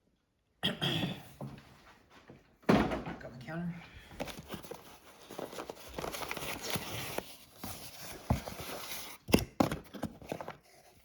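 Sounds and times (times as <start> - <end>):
packaging rustling and scraping: 4.1 - 11.0.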